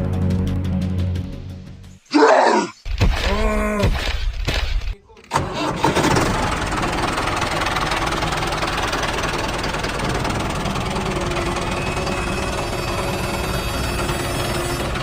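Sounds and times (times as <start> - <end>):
tractor engine running: 4.0 - 15.0.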